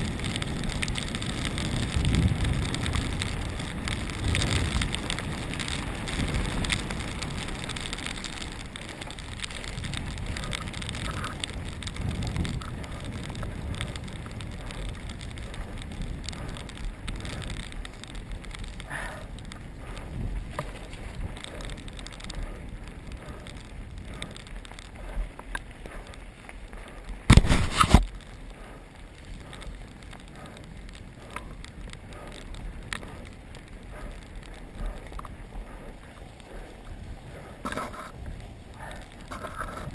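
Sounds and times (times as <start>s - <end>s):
bike tyres on gravel: 0.0s - 39.9s.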